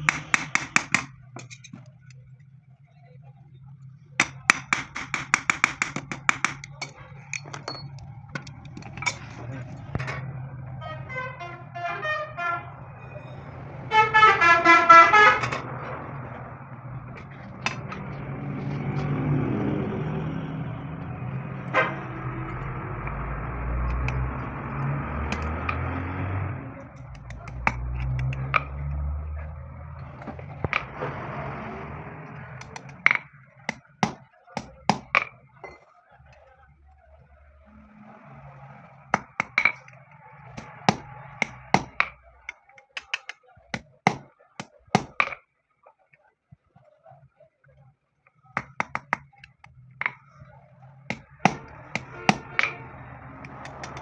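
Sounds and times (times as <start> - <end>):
sharp metallic clinks: 6.5 - 9.2
vehicle horn blasts: 10.8 - 12.9, 13.9 - 15.6, 51.6 - 53.2.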